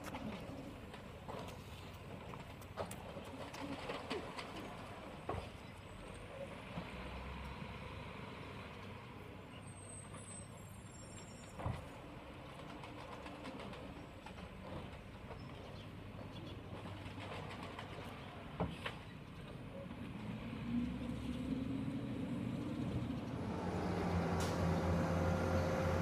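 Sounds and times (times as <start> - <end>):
distant vehicle engine running: 20.0 - 26.0.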